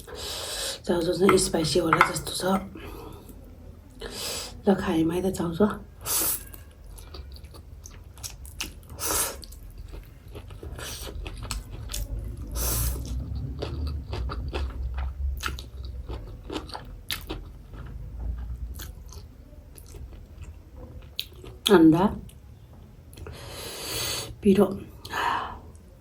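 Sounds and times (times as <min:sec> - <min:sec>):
slurping and chewing noodles: 0:06.0 - 0:20.5.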